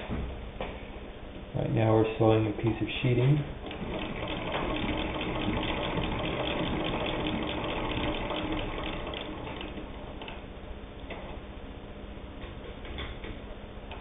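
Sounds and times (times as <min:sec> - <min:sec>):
sewing machine clicking: 0:03.6 - 0:10.4.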